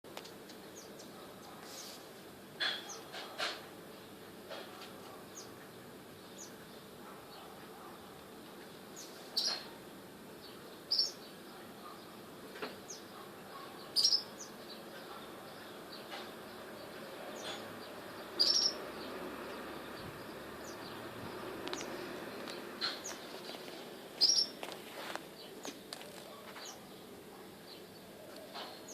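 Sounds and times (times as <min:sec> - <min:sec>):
background hiss: 0:00.1 - 0:03.1
hummingbird chirps: 0:10.4 - 0:11.3, 0:13.8 - 0:23.3, 0:24.2 - 0:24.6.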